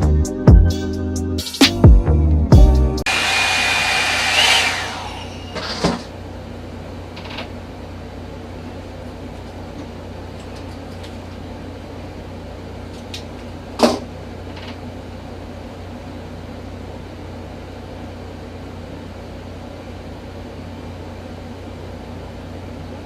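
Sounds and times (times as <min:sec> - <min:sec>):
hot-air brush hissing: 0:03.1 - 0:05.6
motor hum: 0:03.1 - 0:07.0.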